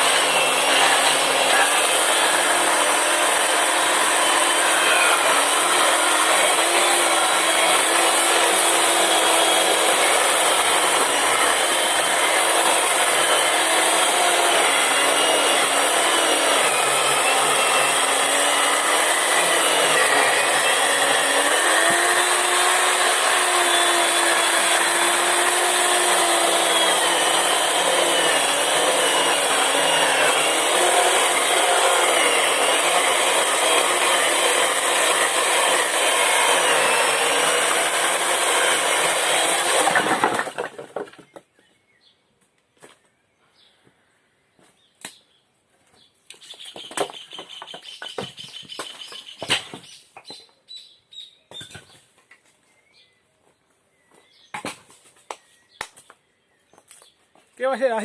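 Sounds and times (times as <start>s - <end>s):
chainsaw cutting wood: 0.0s - 41.2s.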